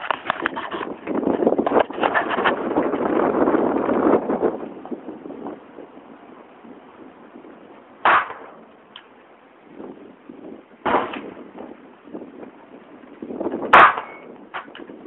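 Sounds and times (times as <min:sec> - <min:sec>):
pistol shots: 0:08.0 - 0:08.6, 0:10.8 - 0:11.2, 0:13.7 - 0:14.3.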